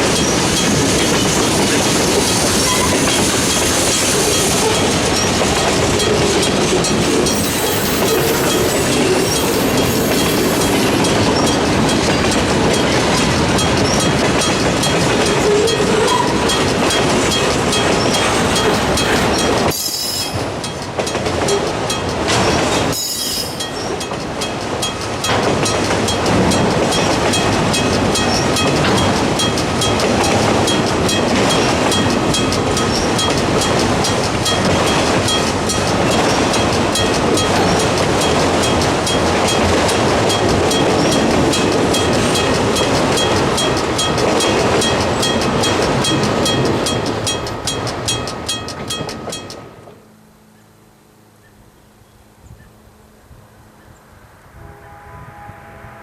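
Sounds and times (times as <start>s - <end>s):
wheels clicking over rail joints: 0.0s - 50.0s
freight train rolling past: 0.0s - 56.0s
high-pitched wheel squeals: 1.2s - 5.3s, 7.3s - 11.5s, 15.3s - 16.6s, 18.0s - 20.4s, 22.9s - 23.9s.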